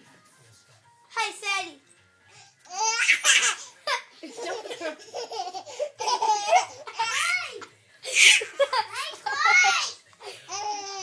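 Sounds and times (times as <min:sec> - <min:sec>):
baby laughing: 0:02.7 - 0:11.0.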